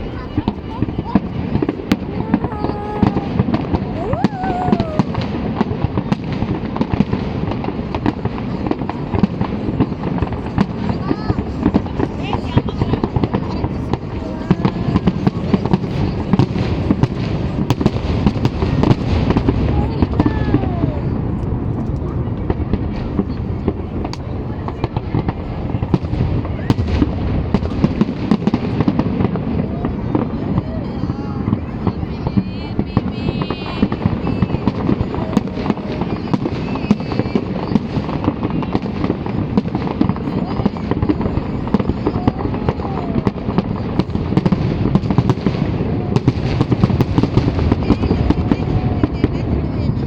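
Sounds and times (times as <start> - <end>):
fireworks booming and crackling: 0.0 - 50.0
falling firework whistle: 0.8 - 6.9, 33.4 - 38.9.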